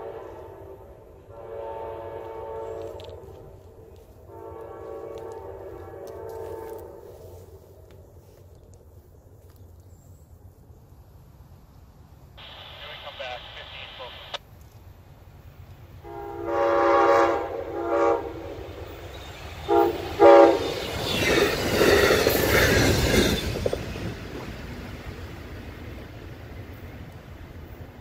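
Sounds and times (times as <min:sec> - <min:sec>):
train horn blasts: 0:00.0 - 0:03.6, 0:04.2 - 0:07.5, 0:16.0 - 0:18.7, 0:19.6 - 0:20.8
train rumbling past: 0:00.0 - 0:09.6, 0:14.9 - 0:28.0.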